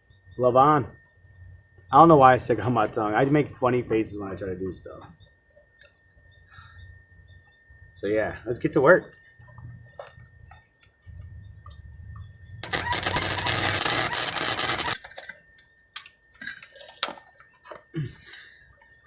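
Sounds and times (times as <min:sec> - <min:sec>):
welder humming: 0:12.6 - 0:15.0
welding arc crackling: 0:12.6 - 0:15.1.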